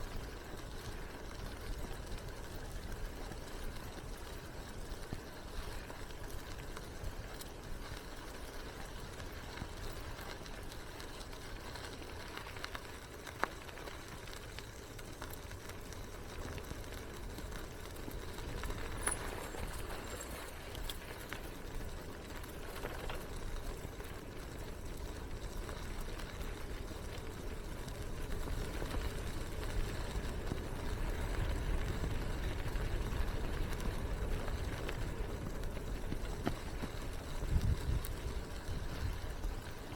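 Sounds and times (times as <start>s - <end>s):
bicycle tyres rolling: 0.0s - 39.9s
bike clicks and rattles: 0.0s - 39.9s
wind on microphone: 31.1s - 39.6s.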